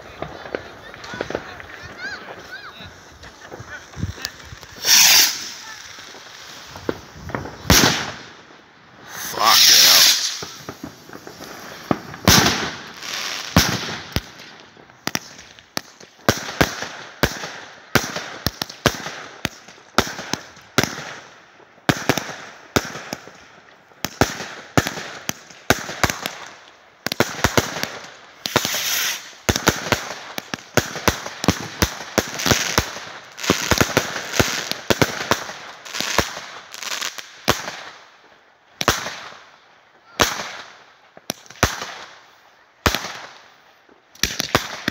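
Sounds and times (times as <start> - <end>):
fireworks banging: 0.0 - 21.2, 27.1 - 37.9.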